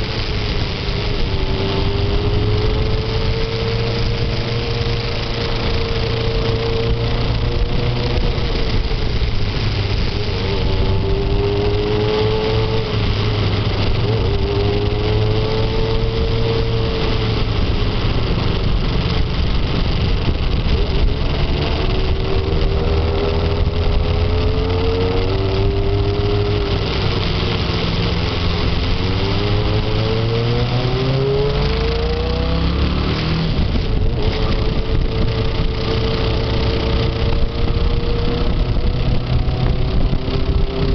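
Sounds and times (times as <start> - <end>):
steady rushing hiss: 0.0 - 32.4
motorcycle engine revving: 0.0 - 40.9.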